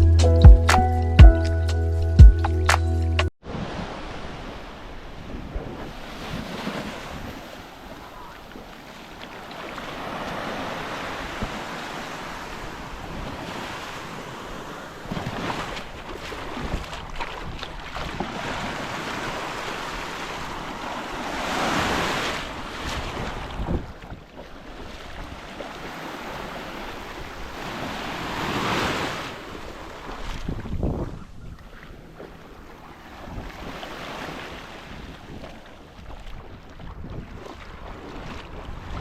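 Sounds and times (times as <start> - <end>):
rushing water: 3.5 - 39.0
wind buffeting microphone: 10.1 - 24.3, 26.2 - 33.8, 34.8 - 39.0
knocks and splashes: 15.1 - 19.8, 35.2 - 39.0.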